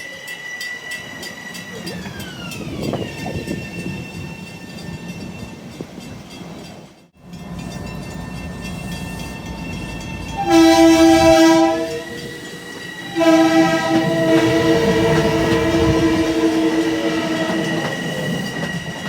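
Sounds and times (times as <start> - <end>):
train rumble: 0.0 - 19.0
train horn blasts: 10.3 - 12.4, 13.1 - 18.0.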